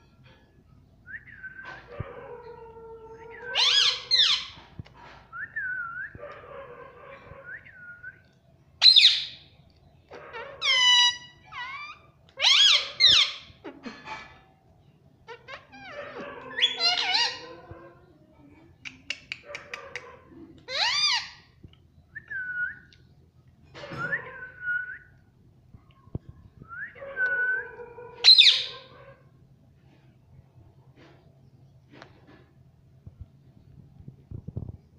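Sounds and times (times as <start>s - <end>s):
parrot squawking and chattering: 3.2s - 4.7s, 8.8s - 9.4s, 10.1s - 14.4s, 15.2s - 17.7s, 18.8s - 21.6s, 28.2s - 29.0s.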